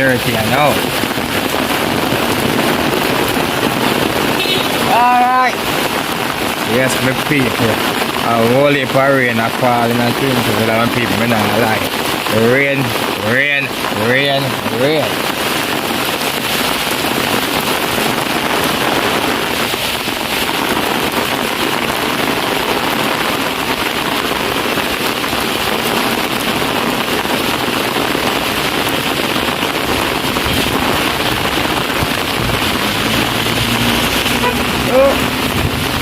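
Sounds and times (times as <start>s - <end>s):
heavy rain pouring: 0.0s - 36.0s.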